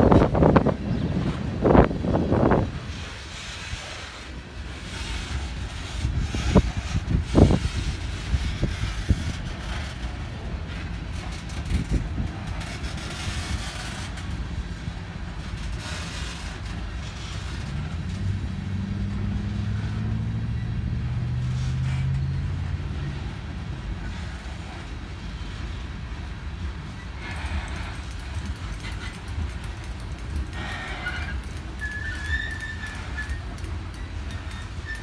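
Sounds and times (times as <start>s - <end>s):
train wheels rumbling on rail: 0.0s - 35.0s
low engine hum: 16.4s - 31.8s.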